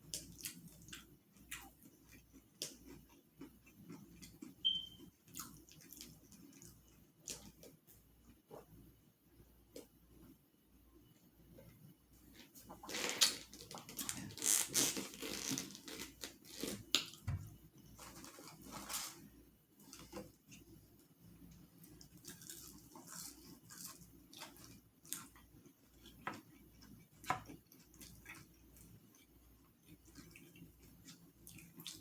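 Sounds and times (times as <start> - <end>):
crackly biting and wet chewing: 0.0 - 8.7, 17.8 - 32.0.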